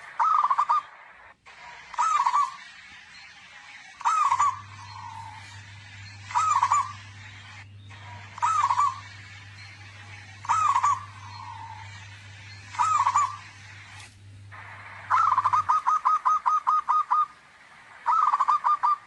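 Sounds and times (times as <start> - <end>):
low steady hum: 0.0 - 19.0
dove cooing: 0.1 - 1.0, 1.9 - 2.6, 4.0 - 7.2, 8.0 - 9.2, 10.0 - 13.9, 14.8 - 17.4, 18.0 - 19.0.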